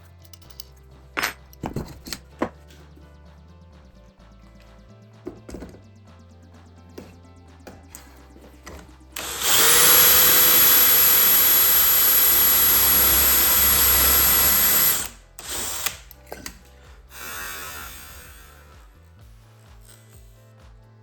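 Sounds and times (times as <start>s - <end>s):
power tool motor whining: 8.6s - 18.7s.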